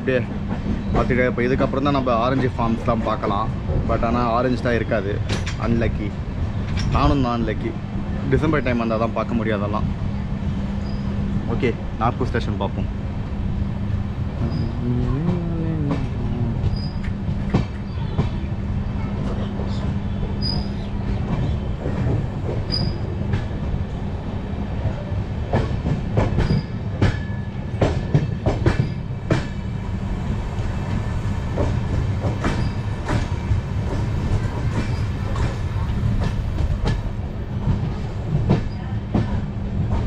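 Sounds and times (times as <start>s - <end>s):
train wheels rumbling: 0.0s - 40.0s
wheels clattering over rail joints: 5.2s - 6.0s
high wheel squeaks: 10.8s - 11.2s, 14.4s - 15.2s, 16.7s - 17.2s.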